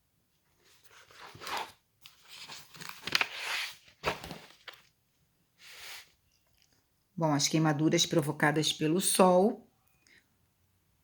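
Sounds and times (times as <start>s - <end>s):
rustling and crinkling: 0.4s - 5.0s.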